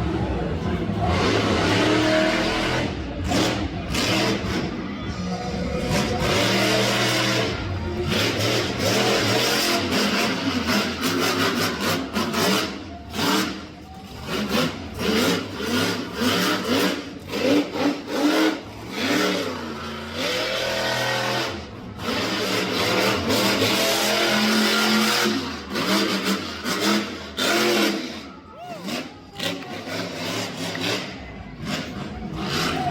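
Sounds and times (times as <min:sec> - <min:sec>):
monster truck engine revving: 0:00.0 - 0:32.9.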